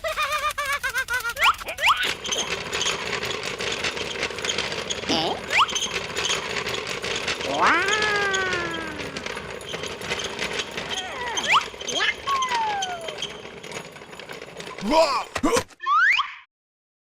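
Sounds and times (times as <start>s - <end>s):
small motor rattling: 0.0s - 15.6s
long falling tone: 7.4s - 9.4s.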